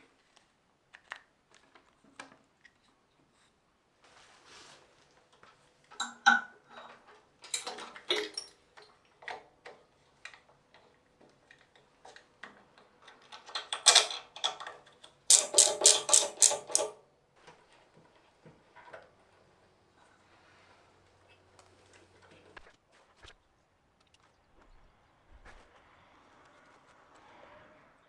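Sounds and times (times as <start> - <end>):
metal tools clicking and clinking: 7.5 - 8.5, 13.3 - 14.7, 15.3 - 17.0
sharp even strokes: 15.3 - 16.9.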